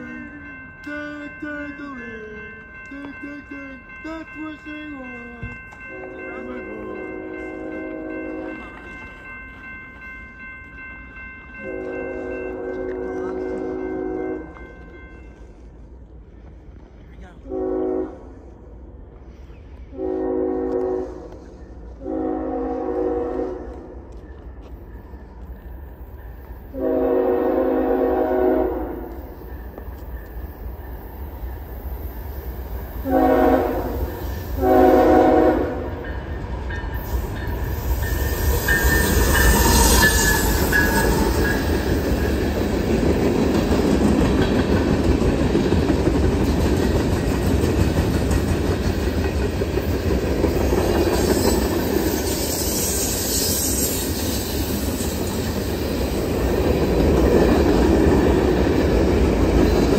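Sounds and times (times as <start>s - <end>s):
train wheels rumbling on rails: 0.0s - 59.9s
train horn blasts: 5.9s - 8.7s, 11.6s - 14.8s, 17.4s - 18.5s, 19.9s - 21.4s, 22.0s - 24.0s, 26.7s - 29.2s, 33.0s - 36.1s.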